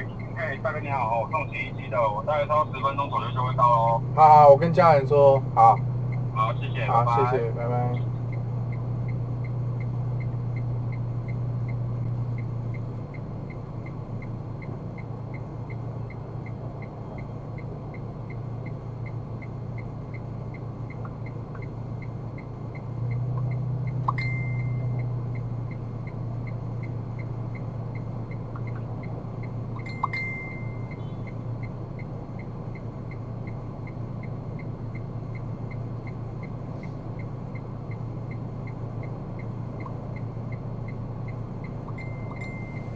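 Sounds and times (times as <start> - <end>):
engine and road hum: 0.0 - 42.9
light ticking: 8.3 - 42.9
brief beeps: 24.2 - 25.0, 42.0 - 42.9.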